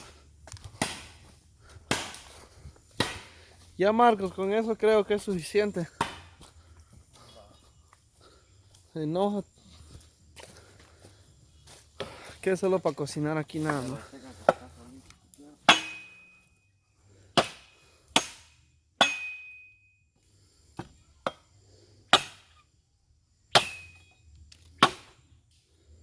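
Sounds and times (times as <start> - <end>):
firewood being chopped: 0.0 - 3.7, 5.8 - 6.5, 13.6 - 16.3, 17.2 - 19.6, 20.7 - 22.6, 23.5 - 25.3.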